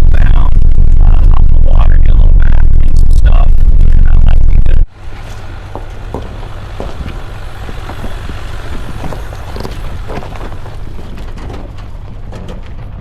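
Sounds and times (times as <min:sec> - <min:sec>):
engine and road rumble: 0:00.0 - 0:13.0
small rattles and knocks: 0:05.0 - 0:13.0.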